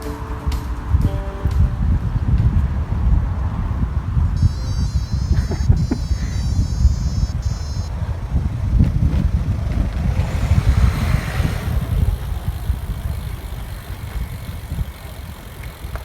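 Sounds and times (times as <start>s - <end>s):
wind buffeting microphone: 0.0s - 16.0s
high multi-tone beeping: 4.4s - 8.0s.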